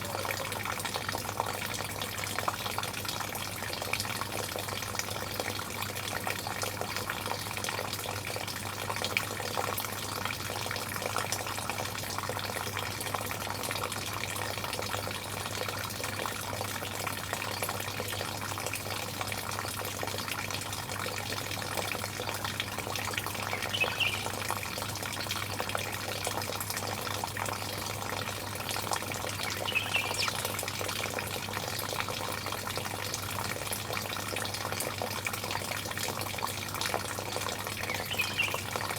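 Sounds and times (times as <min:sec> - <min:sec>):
bird chirping: 0:23.5 - 0:24.4, 0:29.6 - 0:30.5, 0:37.9 - 0:38.7.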